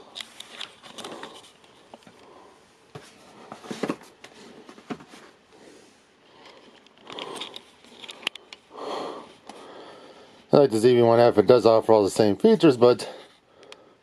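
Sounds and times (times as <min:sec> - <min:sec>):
light clicks and rustles: 0:00.0 - 0:02.3, 0:06.3 - 0:08.7.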